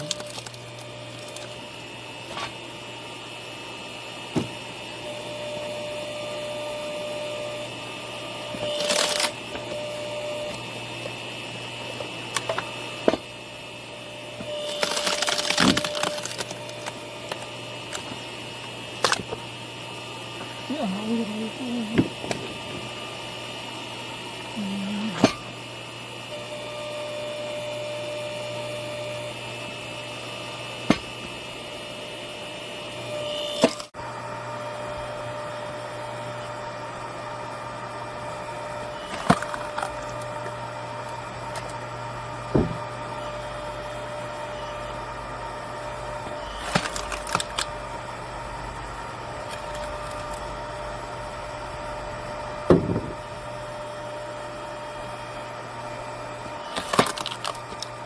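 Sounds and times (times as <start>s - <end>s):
wood cracking apart: 0.0s - 1.6s, 8.7s - 9.4s, 14.6s - 18.1s, 39.0s - 40.4s, 46.6s - 47.7s, 56.7s - 57.9s
hydraulic log splitter running: 0.0s - 31.6s, 33.0s - 58.0s.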